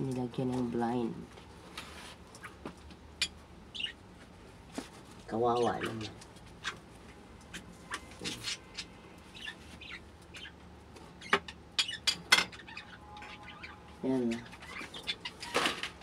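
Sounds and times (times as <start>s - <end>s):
birds chirping and clicking: 2.2s - 4.0s, 5.3s - 16.0s.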